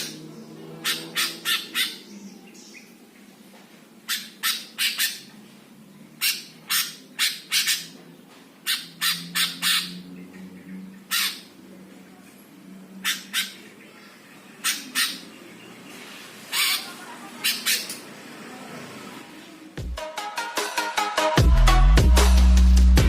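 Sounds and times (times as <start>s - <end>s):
bird giving harsh rasping calls: 0.0s - 2.1s, 4.0s - 5.4s, 6.2s - 8.0s, 8.6s - 11.6s, 12.9s - 13.8s, 14.5s - 15.4s, 16.4s - 18.2s.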